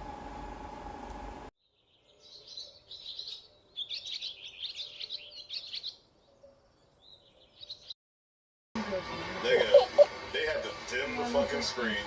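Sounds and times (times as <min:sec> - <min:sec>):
small birds chirping: 0:01.6 - 0:08.0.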